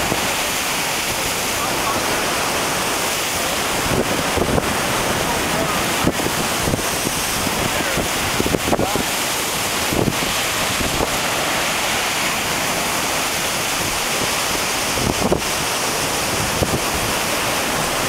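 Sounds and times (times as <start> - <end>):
ocean surf: 0.0 - 18.0
wind buffeting microphone: 0.0 - 18.0.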